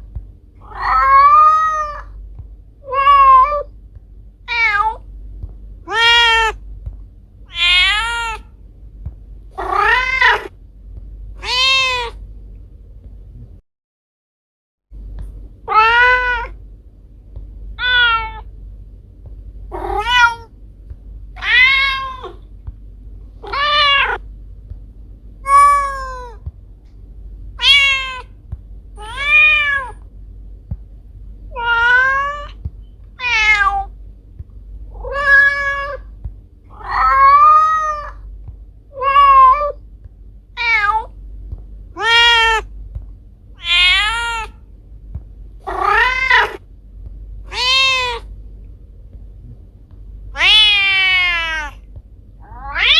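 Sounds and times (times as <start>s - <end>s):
steady low hum: 0.0s - 13.6s, 14.9s - 52.9s
cat meowing: 0.6s - 2.2s, 2.8s - 3.7s, 4.5s - 5.0s, 5.9s - 6.6s, 7.5s - 8.5s, 9.6s - 10.5s, 11.4s - 12.2s, 15.7s - 16.6s, 17.8s - 18.5s, 19.7s - 20.5s, 21.4s - 22.4s, 23.4s - 24.2s, 25.4s - 26.4s, 27.6s - 28.3s, 29.0s - 30.0s, 31.5s - 32.6s, 33.2s - 33.9s, 35.0s - 36.1s, 36.7s - 38.2s, 39.0s - 39.8s, 40.6s - 41.1s, 42.0s - 42.7s, 43.6s - 44.6s, 45.6s - 46.6s, 47.5s - 48.3s, 50.3s - 51.8s, 52.4s - 52.9s.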